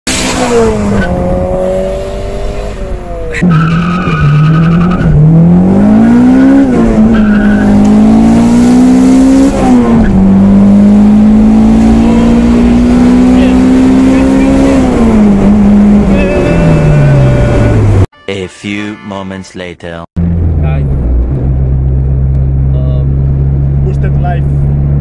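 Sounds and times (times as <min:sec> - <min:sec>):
car engine revving through gears: 0:00.1 - 0:18.1.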